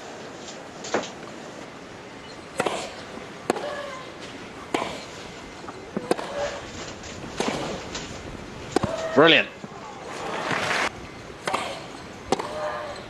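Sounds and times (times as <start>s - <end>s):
tennis rackets striking ball: 2.6s - 3.9s, 5.9s - 6.6s, 7.4s - 8.1s, 8.7s - 9.8s, 10.4s - 13.0s.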